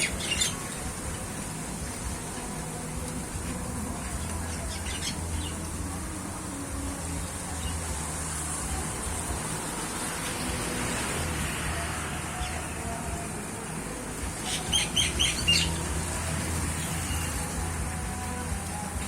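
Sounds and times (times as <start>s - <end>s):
birds calling: 0.0s - 6.2s, 14.2s - 17.6s.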